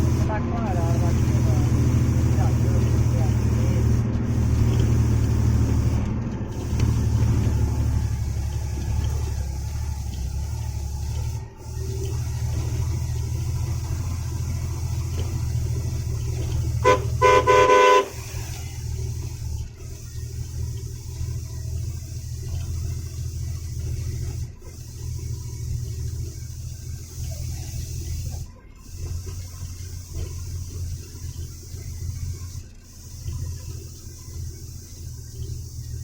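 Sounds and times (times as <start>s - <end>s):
truck engine droning: 0.0s - 36.0s
vehicle horn: 16.4s - 18.6s.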